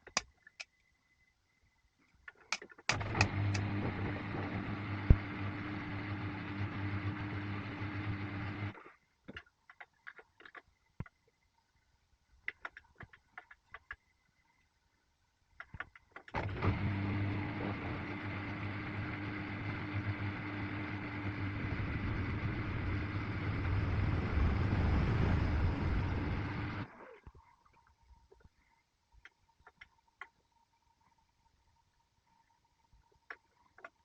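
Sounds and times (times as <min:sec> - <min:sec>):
clicks: 0:02.2 - 0:03.8, 0:12.4 - 0:14.1, 0:15.6 - 0:16.4
motor-driven machine running: 0:02.9 - 0:08.8, 0:16.4 - 0:26.9.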